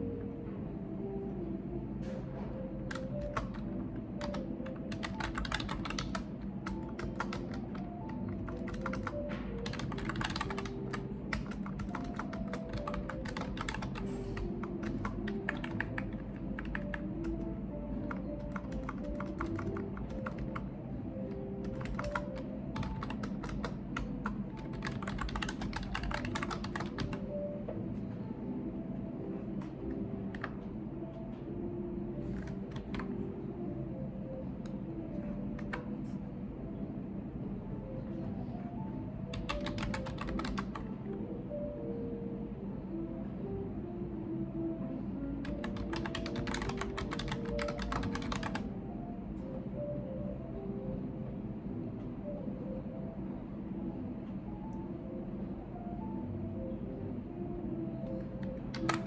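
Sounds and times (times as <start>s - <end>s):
background music: 0.0s - 59.0s
typing on computer keyboard: 2.8s - 17.4s, 18.0s - 20.7s, 21.6s - 27.3s, 29.6s - 30.6s, 32.3s - 33.2s, 35.6s - 35.9s, 39.3s - 40.9s, 45.4s - 48.6s, 58.2s - 59.0s.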